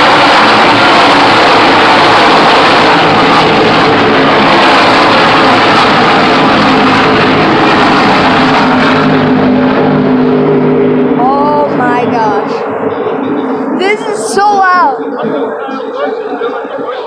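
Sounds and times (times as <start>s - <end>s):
race cars passing at full throttle: 0.0s - 17.0s.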